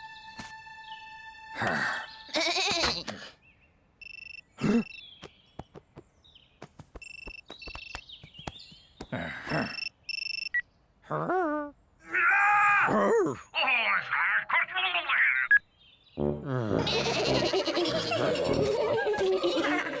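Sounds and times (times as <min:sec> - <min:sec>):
farm animals calling: 0:16.8 - 0:20.0.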